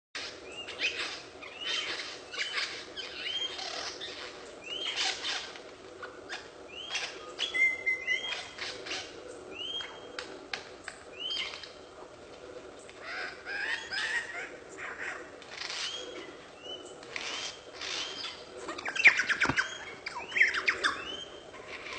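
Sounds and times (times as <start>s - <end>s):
bird chirping: 13.0s - 21.9s.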